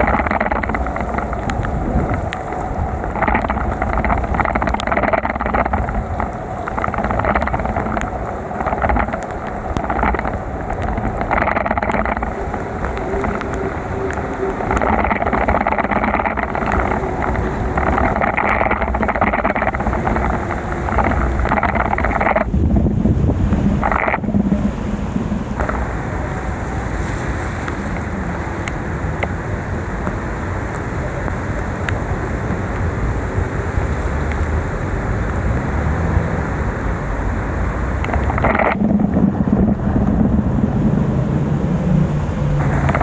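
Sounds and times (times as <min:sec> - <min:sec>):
small clicks: 0:00.0 - 0:22.5, 0:23.5 - 0:24.7, 0:38.0 - 0:39.7, 0:42.6 - 0:43.0
bicycle road noise in heavy rain: 0:00.0 - 0:43.0.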